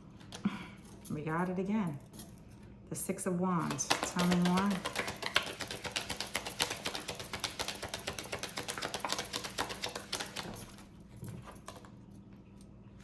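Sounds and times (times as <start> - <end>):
cards being shuffled: 3.6 - 10.8.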